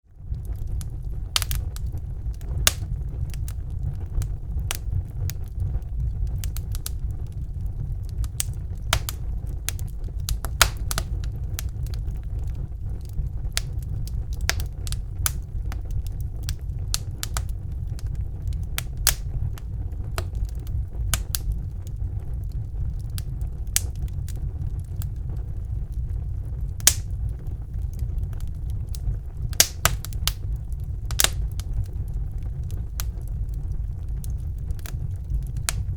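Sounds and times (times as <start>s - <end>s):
wood fire crackling: 0.0s - 35.9s
sharp pops and snaps: 0.6s - 3.6s, 8.2s - 12.4s, 13.0s - 22.0s, 23.0s - 24.4s, 26.7s - 35.9s.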